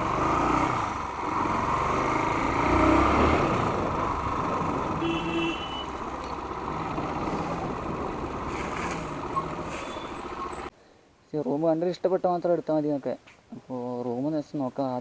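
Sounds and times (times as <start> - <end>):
vehicle engine running: 0.0 - 10.7
road noise: 0.0 - 11.8.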